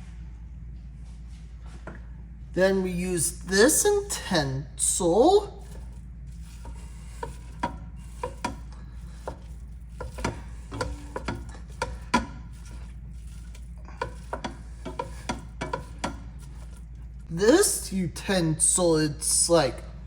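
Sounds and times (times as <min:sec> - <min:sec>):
steady low hum: 0:00.0 - 0:20.0
utensil tapping and scraping a pan: 0:04.9 - 0:17.3.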